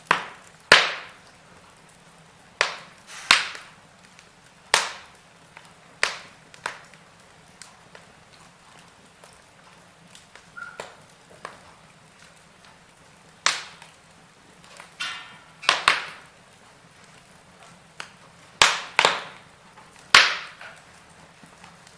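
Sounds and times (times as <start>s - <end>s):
fire popping: 0.0s - 21.9s
wood fire crackling: 0.0s - 21.9s
small snaps: 2.6s - 12.8s, 13.4s - 14.0s, 17.0s - 21.9s.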